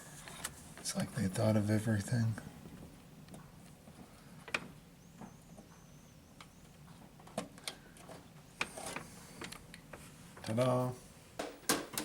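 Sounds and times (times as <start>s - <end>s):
computer parts clicking and knocking: 11.4s - 12.0s.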